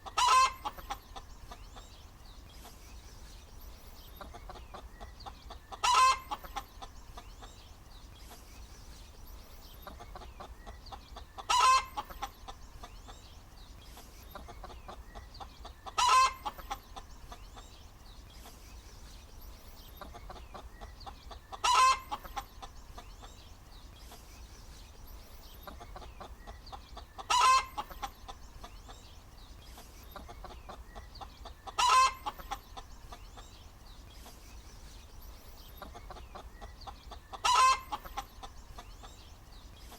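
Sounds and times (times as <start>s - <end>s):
hen cackling: 0.0s - 1.6s, 4.2s - 6.9s, 10.0s - 12.6s, 14.4s - 17.4s, 21.3s - 22.7s, 25.7s - 28.7s, 30.2s - 33.2s, 35.9s - 38.5s
hen clucking: 0.0s - 2.0s, 4.0s - 8.5s, 9.7s - 13.3s, 13.9s - 17.8s, 19.8s - 23.4s, 25.4s - 34.4s, 35.6s - 39.3s.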